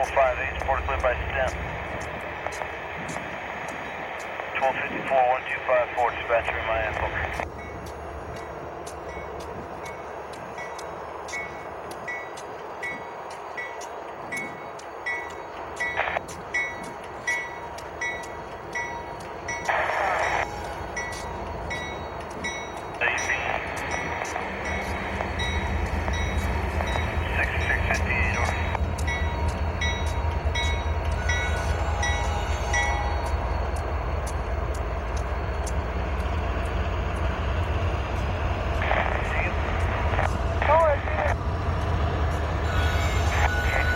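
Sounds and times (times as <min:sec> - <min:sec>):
rumble of passing train: 0:00.0 - 0:43.9
bell ringing: 0:16.6 - 0:34.0.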